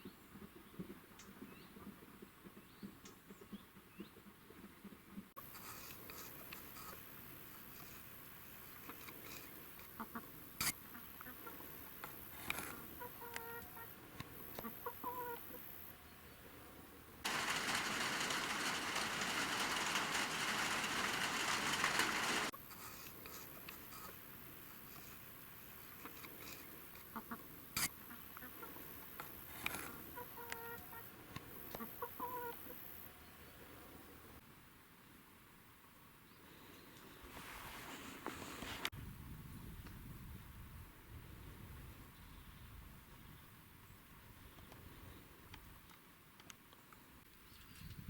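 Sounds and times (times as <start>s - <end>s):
clicks and small knocks: 17.3s - 22.5s.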